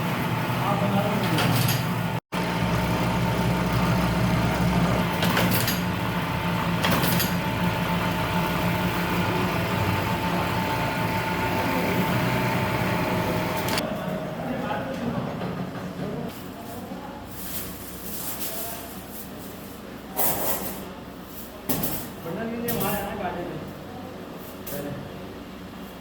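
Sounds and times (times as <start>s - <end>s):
motor humming: 0.0s - 14.1s.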